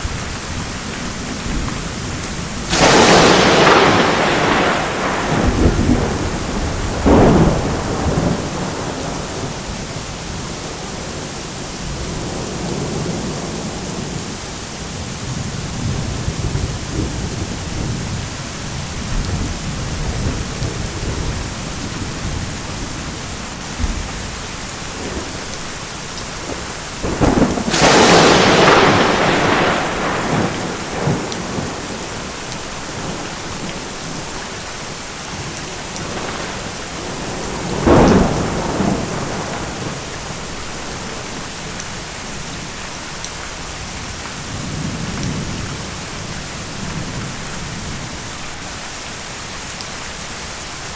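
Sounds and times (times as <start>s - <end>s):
low thunder rumbling: 0.0s - 34.5s, 35.3s - 42.8s, 43.5s - 48.3s
heavy rain: 0.0s - 50.9s
thunderclap: 1.3s - 10.0s, 15.3s - 18.3s, 18.9s - 25.6s, 26.2s - 33.9s, 35.4s - 42.0s.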